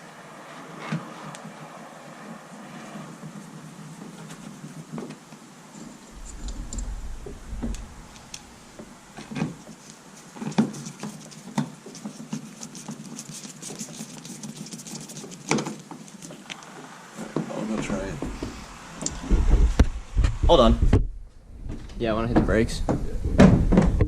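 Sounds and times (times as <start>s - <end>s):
low rumble: 6.1s - 9.4s, 18.2s - 22.1s.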